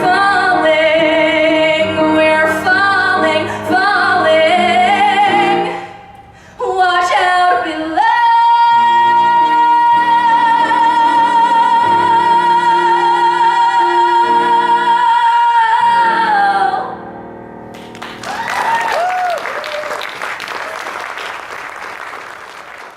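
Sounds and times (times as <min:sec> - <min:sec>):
audience applause and cheering: 0:17.8 - 0:22.9.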